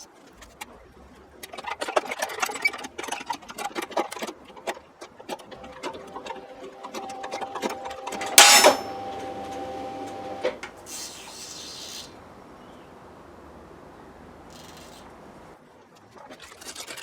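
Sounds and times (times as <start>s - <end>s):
steady ringing tone: 6.1s - 10.4s
loud metallic clank: 8.2s - 9.3s.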